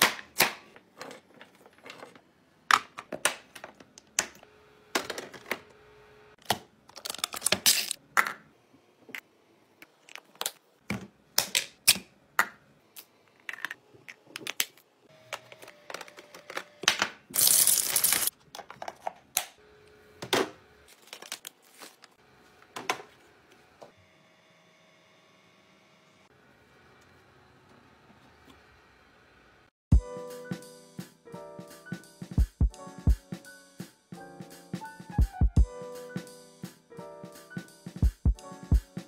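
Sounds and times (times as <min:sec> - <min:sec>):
packaging crinkling: 0:06.9 - 0:08.0, 0:17.4 - 0:18.3, 0:20.9 - 0:22.2
packaging tearing: 0:17.4 - 0:18.3, 0:20.9 - 0:22.2.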